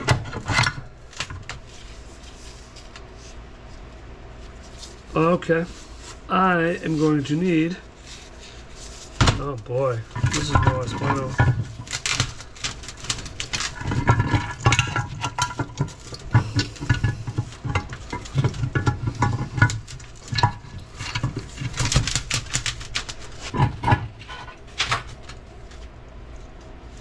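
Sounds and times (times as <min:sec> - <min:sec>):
metal parts clicking and knocking: 0:10.1 - 0:25.4.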